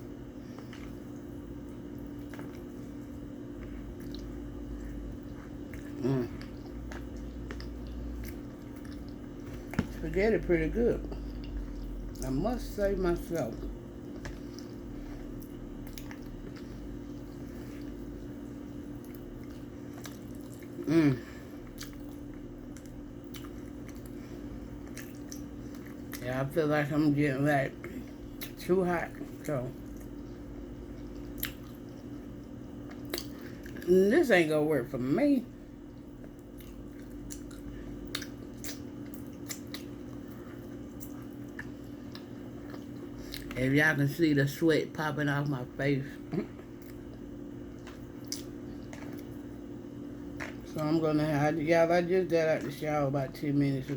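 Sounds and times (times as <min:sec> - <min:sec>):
person chewing food: 0:00.0 - 0:10.4, 0:11.0 - 0:26.2, 0:27.8 - 0:33.9, 0:35.6 - 0:43.6, 0:46.2 - 0:50.8
steady low hum: 0:00.0 - 0:53.9
person humming mm: 0:20.8 - 0:21.4.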